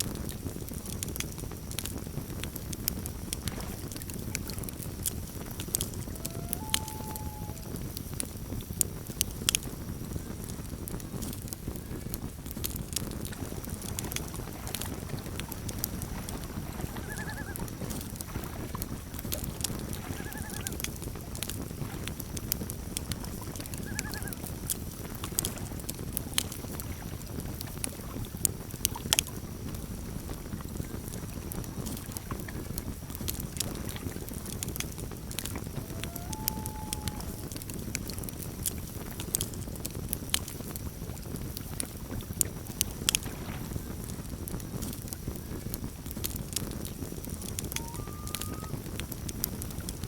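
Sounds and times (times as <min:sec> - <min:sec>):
campfire crackling and popping: 0:00.0 - 0:50.0
faint animal calls: 0:05.8 - 0:07.9, 0:16.8 - 0:17.8, 0:19.9 - 0:20.8, 0:23.8 - 0:24.5, 0:35.4 - 0:37.8, 0:47.4 - 0:49.0
loon wailing: 0:06.0 - 0:07.8, 0:17.0 - 0:17.6, 0:35.6 - 0:37.7, 0:47.6 - 0:48.8.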